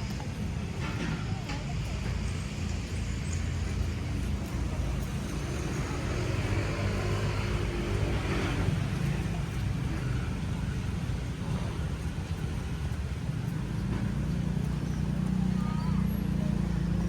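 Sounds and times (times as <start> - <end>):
road traffic rumble: 0.0 - 17.0
vehicle driving past: 3.8 - 9.6.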